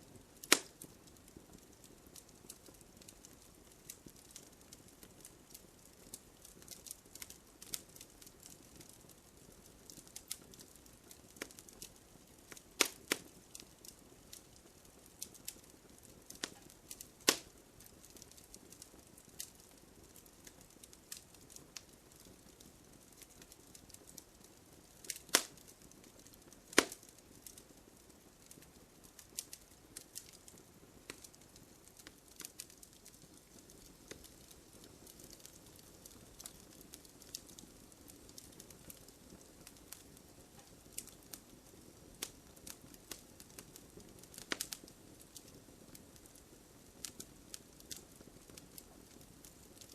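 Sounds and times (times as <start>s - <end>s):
campfire crackling: 0.0s - 49.9s.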